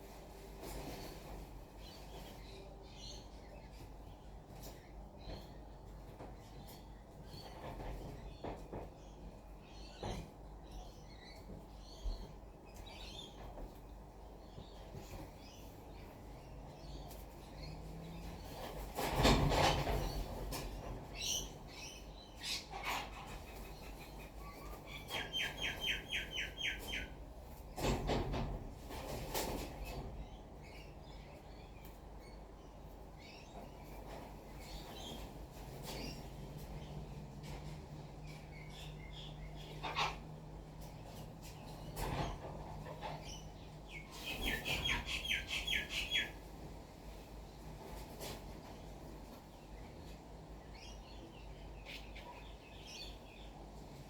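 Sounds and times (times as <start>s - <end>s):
wild birds calling: 21.1s - 27.2s, 38.2s - 40.8s, 41.7s - 46.4s.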